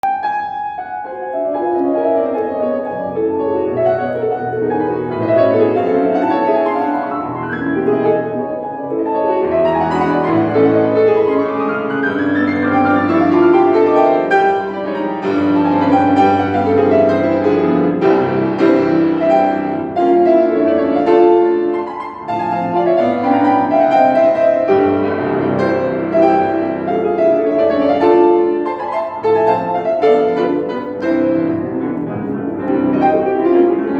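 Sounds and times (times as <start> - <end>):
solo classical piano: 0.0 - 33.9.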